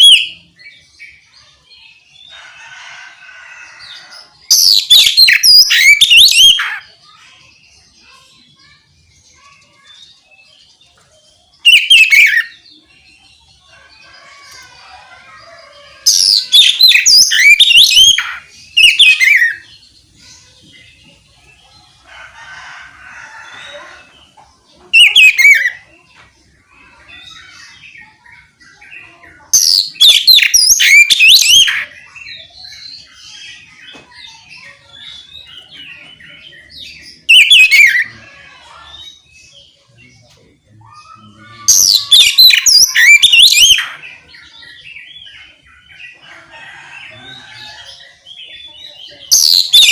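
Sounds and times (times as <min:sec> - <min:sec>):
bird chattering: 0:40.9 - 0:46.2.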